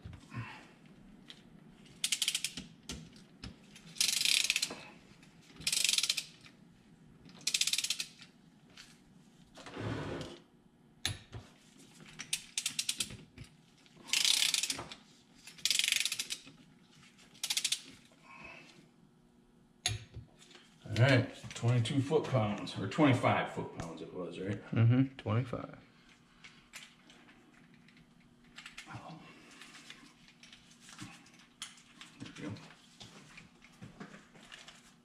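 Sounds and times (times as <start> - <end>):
torque wrench ratchet clicking: 2.0 - 2.7, 4.0 - 4.7, 5.6 - 6.4, 7.4 - 8.2, 12.3 - 13.1, 14.1 - 14.8, 15.6 - 16.4, 17.4 - 17.9.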